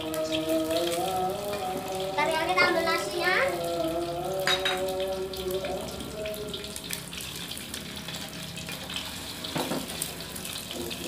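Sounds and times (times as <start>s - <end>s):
eggs sizzling in hot oil: 0.0s - 11.0s.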